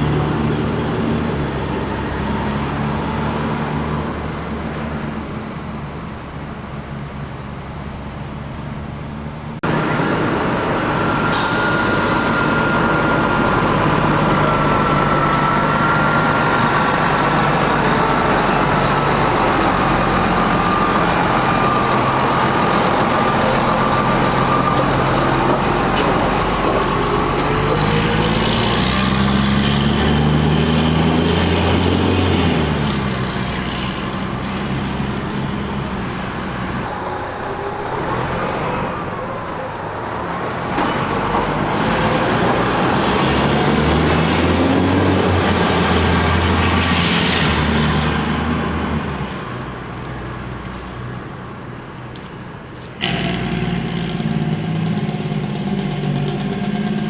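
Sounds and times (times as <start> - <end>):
diesel engine running: 0.0 - 57.0
burst of hissing: 11.2 - 14.5.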